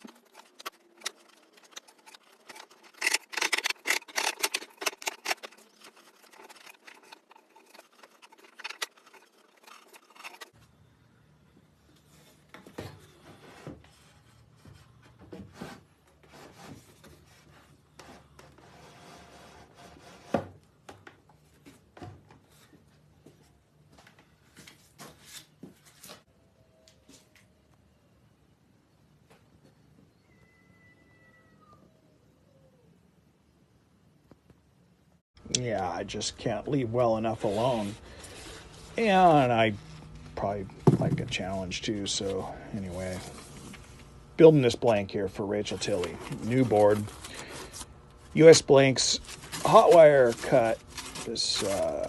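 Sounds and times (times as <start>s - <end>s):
hand tool scraping a surface: 0.0s - 10.6s, 37.0s - 41.6s, 45.6s - 52.0s.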